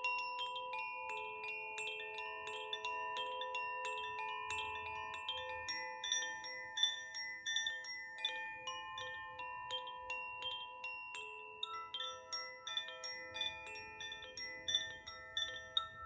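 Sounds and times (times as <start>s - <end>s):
wind chime ringing: 11.6s - 16.0s.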